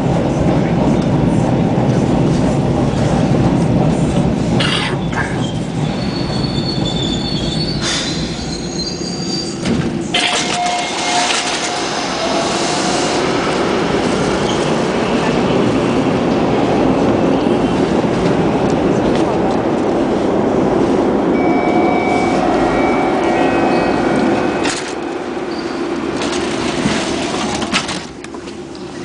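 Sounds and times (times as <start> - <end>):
subway car rumbling: 0.0 - 29.0
high wheel squeals: 5.4 - 13.2, 25.5 - 25.9.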